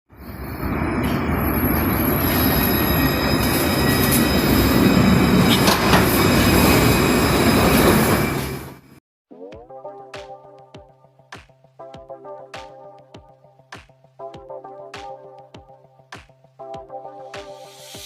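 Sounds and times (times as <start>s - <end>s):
tram rumbling on rails: 0.1s - 9.0s
high thin wheel squeal: 0.2s - 9.0s.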